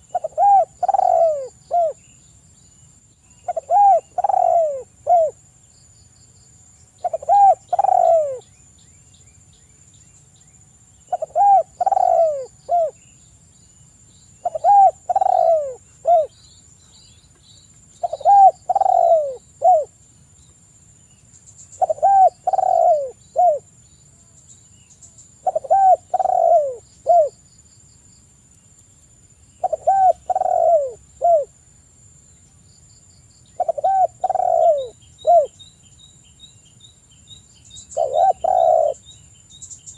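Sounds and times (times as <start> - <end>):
dove cooing: 0.0 - 2.0, 3.4 - 5.4, 7.0 - 8.4, 11.1 - 13.0, 14.4 - 16.4, 18.0 - 20.0, 21.8 - 23.7, 25.4 - 27.3, 29.6 - 31.5, 33.6 - 35.6, 38.0 - 39.0.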